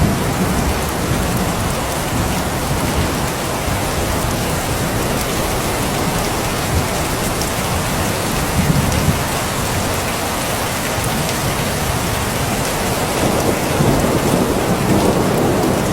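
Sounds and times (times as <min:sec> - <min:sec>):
loud rain falling: 0:00.0 - 0:15.9.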